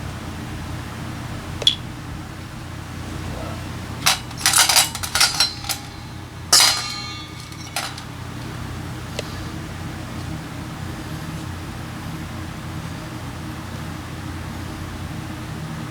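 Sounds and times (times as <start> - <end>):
metal tools clinking: 3.9 - 8.6.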